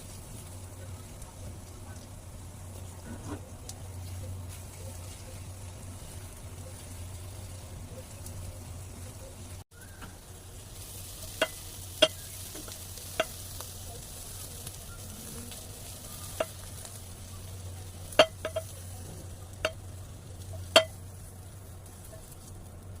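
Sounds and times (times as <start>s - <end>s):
eggs sizzling in a frying pan: 0.0s - 23.0s
utensil knocking against pan: 11.4s - 13.4s, 18.1s - 18.8s, 20.7s - 21.0s.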